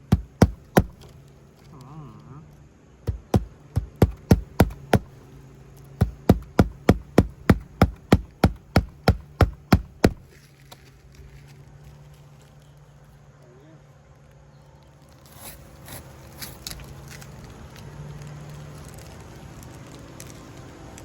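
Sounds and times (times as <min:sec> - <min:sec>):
hammer driving nails: 0:00.0 - 0:01.1, 0:03.1 - 0:05.2, 0:06.0 - 0:10.3.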